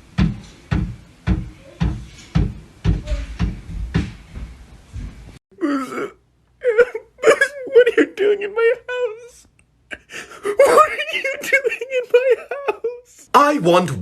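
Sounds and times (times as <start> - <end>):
rhythmic sharp knocking: 0.0 - 4.2.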